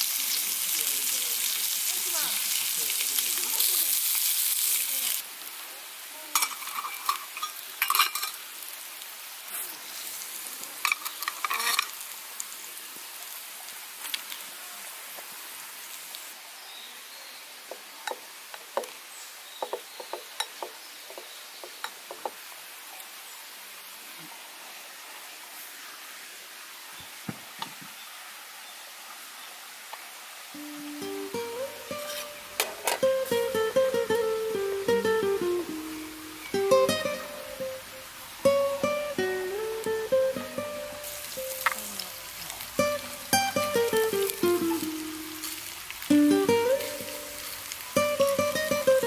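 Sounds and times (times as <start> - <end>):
meat sizzling in a frying pan: 0.0 - 16.4, 30.0 - 49.0
metal cookware clinking: 6.4 - 8.4, 10.8 - 12.0
spatula tapping a pot: 19.6 - 21.2.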